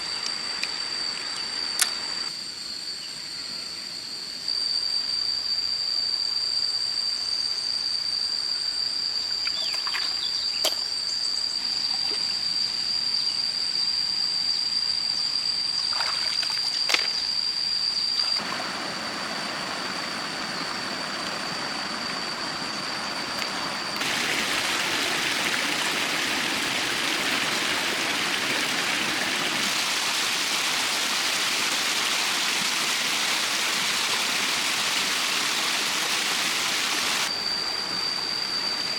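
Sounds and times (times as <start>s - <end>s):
high-pitched insect drone: 0.0s - 38.9s
stream water running: 9.4s - 12.4s, 15.8s - 17.4s, 18.1s - 37.3s.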